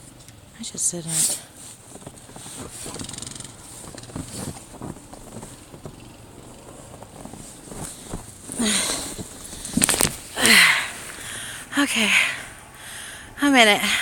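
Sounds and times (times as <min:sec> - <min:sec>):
snow crunching and rustling: 0:00.8 - 0:11.5.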